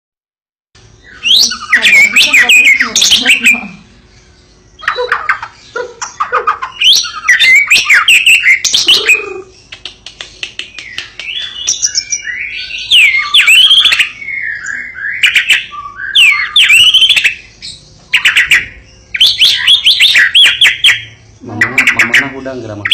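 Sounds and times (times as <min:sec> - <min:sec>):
bird singing varied whistles: 0:01.0 - 0:03.6, 0:11.3 - 0:22.9.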